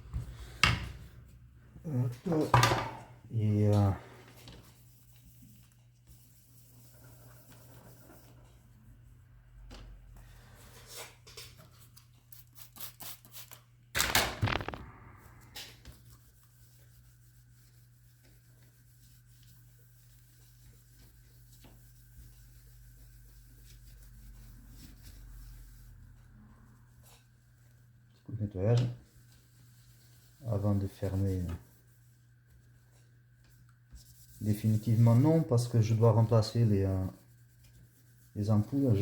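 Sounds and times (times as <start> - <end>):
hands scraping and handling plastic: 14.0 - 14.9.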